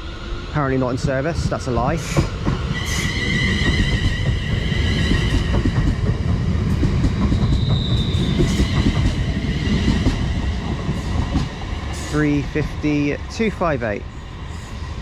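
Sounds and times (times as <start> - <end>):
train low rumble: 0.0 - 15.0
high squeal: 7.4 - 10.0.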